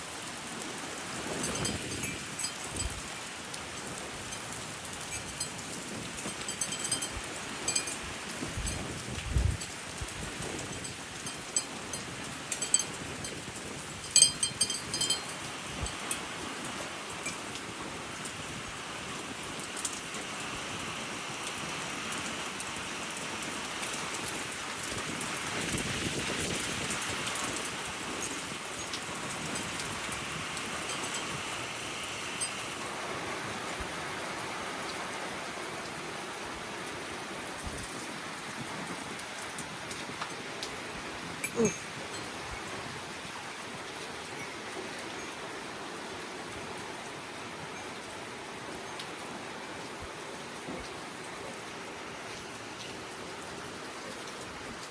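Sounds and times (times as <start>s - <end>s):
heavy rain pouring: 0.0s - 54.9s
raindrops ticking close by: 0.0s - 54.9s.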